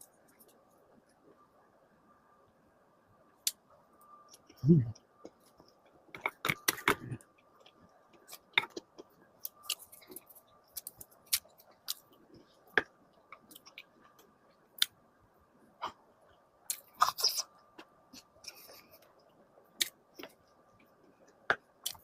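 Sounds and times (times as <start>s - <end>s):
faint high hum: 0.0s - 22.0s.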